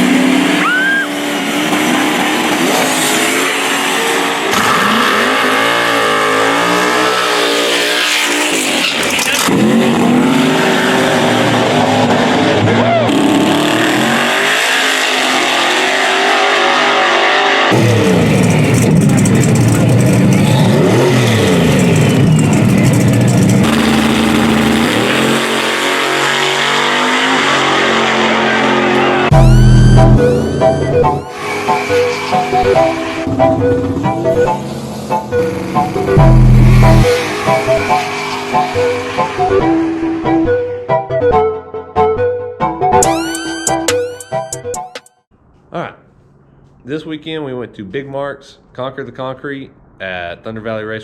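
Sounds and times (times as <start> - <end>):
drag racing cars accelerating: 0.0 - 40.3.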